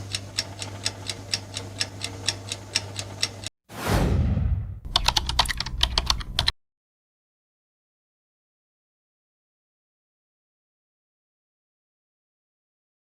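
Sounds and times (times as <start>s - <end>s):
falling whoosh: 3.7s - 4.8s
keyboard key clicks: 4.9s - 6.5s.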